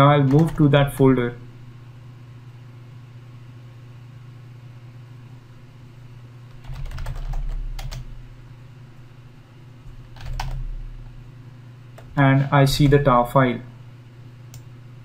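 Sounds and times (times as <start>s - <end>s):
low steady hum: 0.0s - 15.0s
computer keyboard typing: 0.2s - 0.7s, 6.5s - 8.2s, 9.9s - 10.8s.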